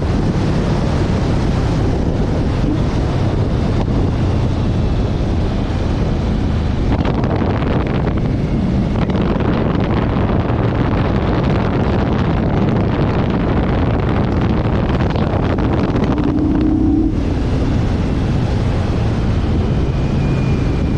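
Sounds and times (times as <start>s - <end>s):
wind buffeting microphone: 0.0s - 20.9s
motorcycle engine running: 14.1s - 19.8s
short higher hum: 15.6s - 18.3s.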